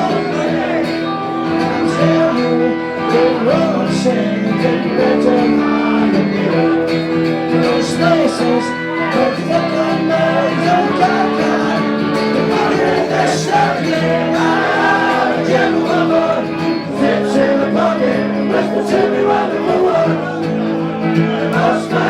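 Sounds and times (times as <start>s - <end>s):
acoustic guitar strumming: 0.0s - 22.0s
man singing: 0.0s - 22.0s.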